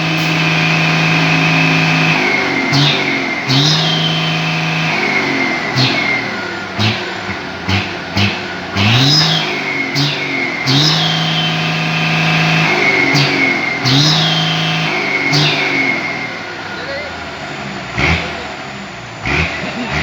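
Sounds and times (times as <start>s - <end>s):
diesel truck engine revving: 0.0s - 20.0s
high whistle: 0.3s - 6.6s, 9.0s - 16.5s.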